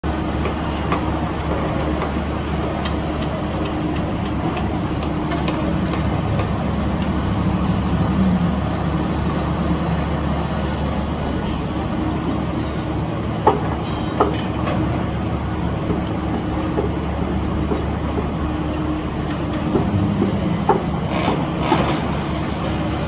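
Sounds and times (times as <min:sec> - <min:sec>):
construction machinery engine running: 0:00.0 - 0:23.0
faint clicks and clanks: 0:02.8 - 0:14.8.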